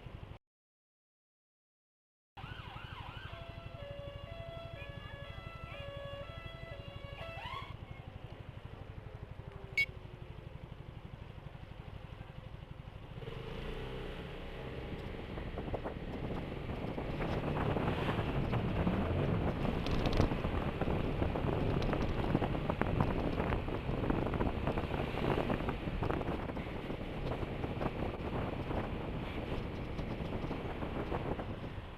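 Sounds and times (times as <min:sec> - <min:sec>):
road noise: 0:00.0 - 0:00.4, 0:02.4 - 0:31.9
scooter engine idling and pulling away: 0:02.8 - 0:31.9
wind buffeting microphone: 0:14.8 - 0:31.9.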